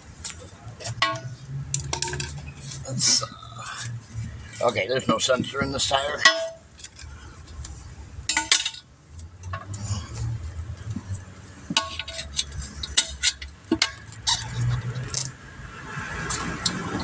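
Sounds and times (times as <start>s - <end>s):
metal tools clinking on metal: 0.3s - 7.2s, 8.3s - 10.2s, 11.7s - 15.3s.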